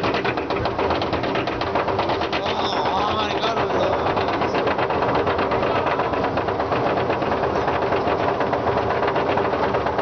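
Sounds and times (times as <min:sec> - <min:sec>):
roller coaster wheels clattering: 0:00.0 - 0:10.0.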